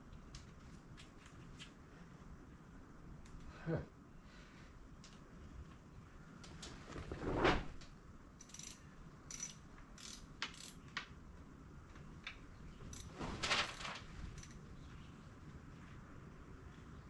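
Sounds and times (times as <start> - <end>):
metal tools clinking on steel: 8.4 - 10.8, 12.9 - 13.2, 14.3 - 14.6.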